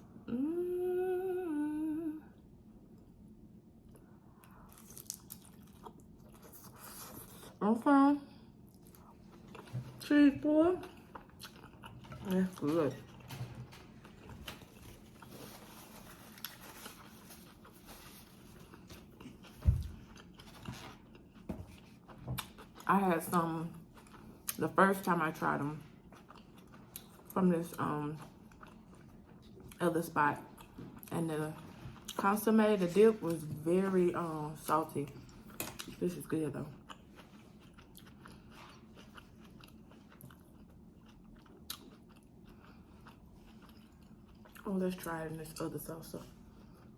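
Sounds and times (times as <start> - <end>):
person chewing: 3.8 - 7.6, 8.6 - 10.0, 10.8 - 22.9, 23.8 - 24.6, 25.9 - 27.4, 28.2 - 29.8, 36.8 - 44.7.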